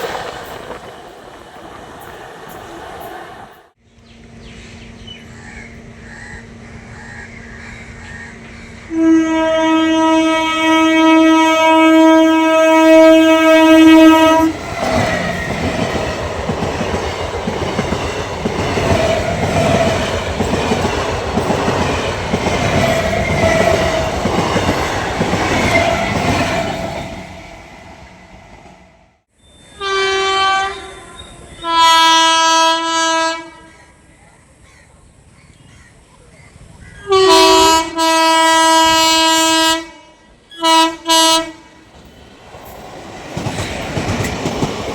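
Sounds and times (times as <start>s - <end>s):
wheels clacking over rail joints: 0.0s - 3.8s, 13.8s - 28.8s, 41.8s - 44.9s
train rumbling past: 0.0s - 34.2s, 35.2s - 44.9s
train horn blowing: 8.9s - 14.6s, 29.7s - 33.9s, 37.0s - 41.9s.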